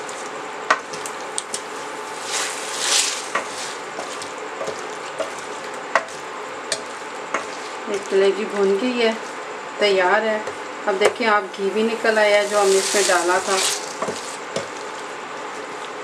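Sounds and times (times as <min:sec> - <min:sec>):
meat sizzling in a pan: 0:00.8 - 0:07.9, 0:12.4 - 0:15.0
spatula scraping pan: 0:02.1 - 0:07.8
spatula knocking against pan: 0:03.4 - 0:07.5.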